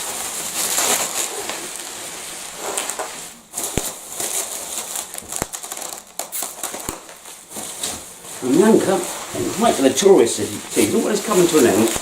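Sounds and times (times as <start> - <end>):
packaging crinkling: 2.8 - 8.0
sharp click: 3.8 - 4.0.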